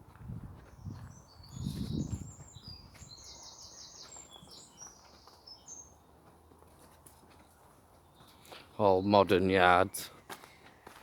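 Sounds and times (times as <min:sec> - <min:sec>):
small bird singing: 0:00.7 - 0:06.2, 0:08.0 - 0:10.0.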